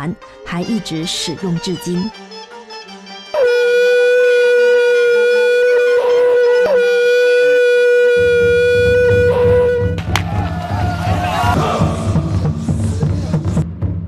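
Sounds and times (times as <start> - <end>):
wind instrument steady note: 0.6 - 10.0
low pulsing beat: 8.1 - 14.0.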